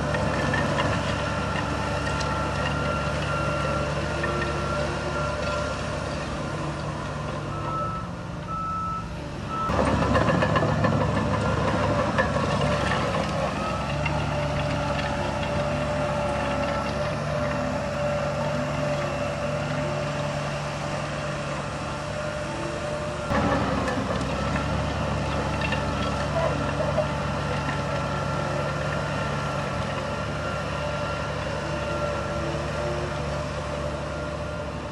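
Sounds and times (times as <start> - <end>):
diesel engine running: 0.0 - 34.9
reversing alarm beeping: 1.2 - 6.0, 7.4 - 10.3.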